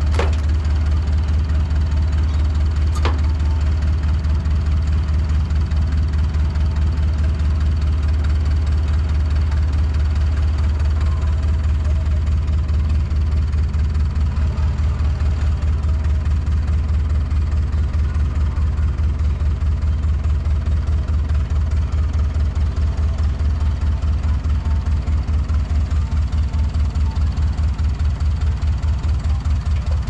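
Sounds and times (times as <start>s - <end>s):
skid steer engine running: 0.0s - 30.0s.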